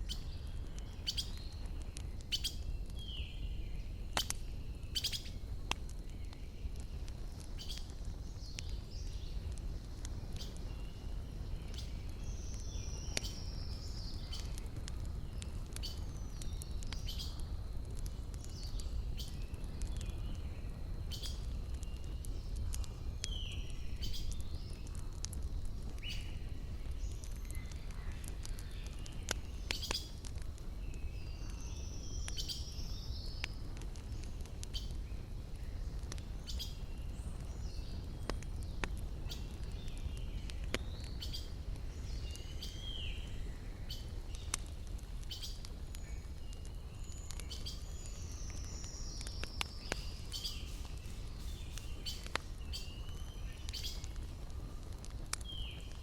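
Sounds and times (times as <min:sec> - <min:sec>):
wood fire crackling and popping: 0:00.0 - 0:56.0
birds chirping and whistling: 0:45.2 - 0:54.1.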